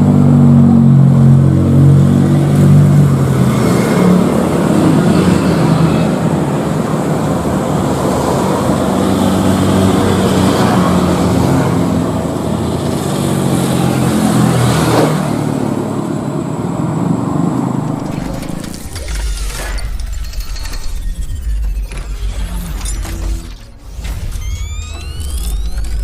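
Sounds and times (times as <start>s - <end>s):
jet engines roaring: 0.0s - 19.9s.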